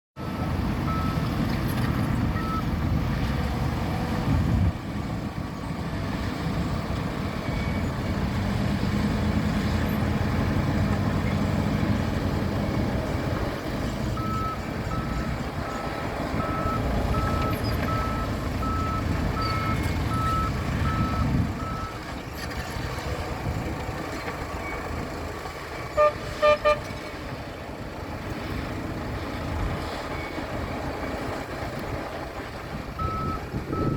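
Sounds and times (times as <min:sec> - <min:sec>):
reversing alarm beeping: 0:00.2 - 0:01.2, 0:14.2 - 0:22.0, 0:33.0 - 0:33.9
bulldozer diesel engine running: 0:00.2 - 0:33.9
short horn toots: 0:25.9 - 0:27.0.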